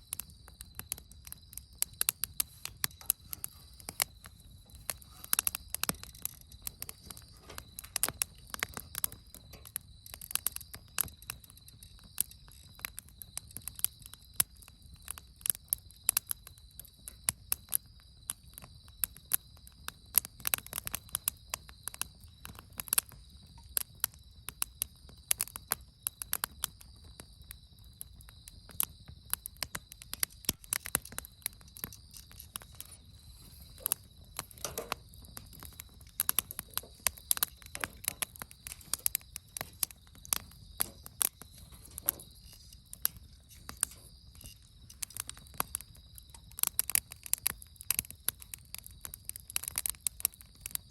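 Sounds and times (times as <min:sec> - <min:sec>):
campfire crackling and popping: 0:00.0 - 0:50.9.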